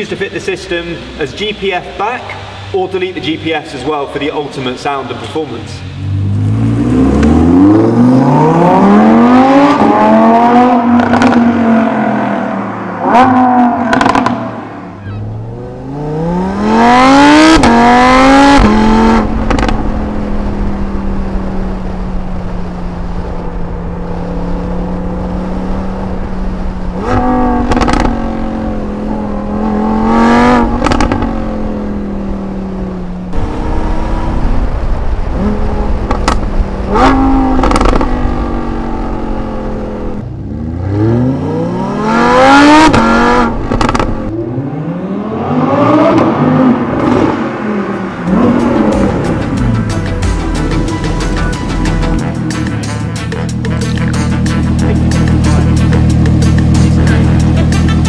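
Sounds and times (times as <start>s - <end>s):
engine throttle blips: 0.0s - 58.0s
sports car engine revving: 0.0s - 58.0s.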